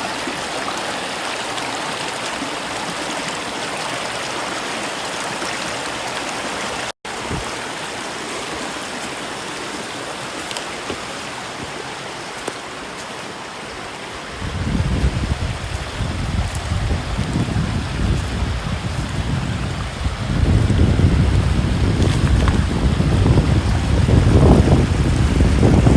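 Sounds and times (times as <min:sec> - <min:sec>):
stream rushing water: 0:00.0 - 0:25.9
wind buffeting microphone: 0:07.2 - 0:07.6, 0:14.2 - 0:25.9.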